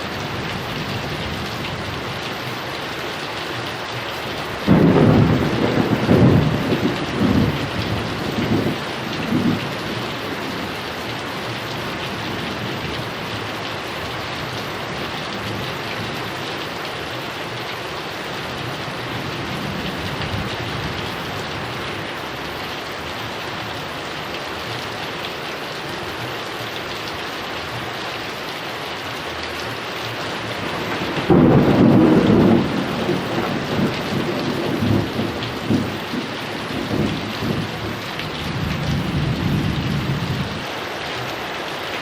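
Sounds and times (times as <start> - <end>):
heavy rain pouring: 0.0 - 42.0
thunder rumble: 4.5 - 10.8, 30.3 - 40.6.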